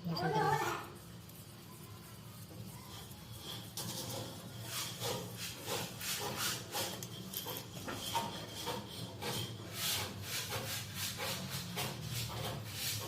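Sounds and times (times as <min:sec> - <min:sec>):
hand tool rasping on metal: 0:00.2 - 0:13.0.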